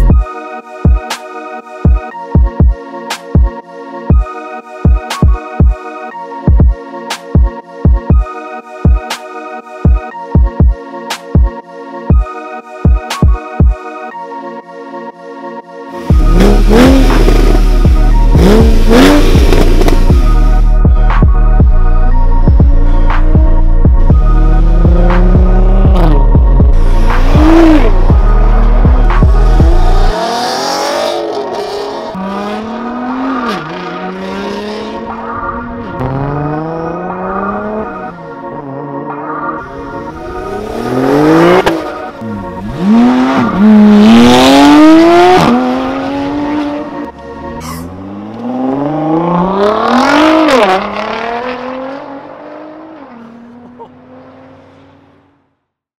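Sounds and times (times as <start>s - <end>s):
car engine accelerating: 16.0s - 20.7s, 22.7s - 55.4s.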